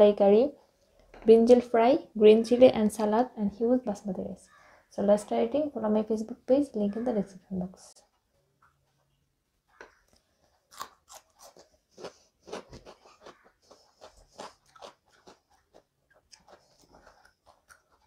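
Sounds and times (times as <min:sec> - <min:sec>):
chewing with wet clicks: 0:09.8 - 0:18.0.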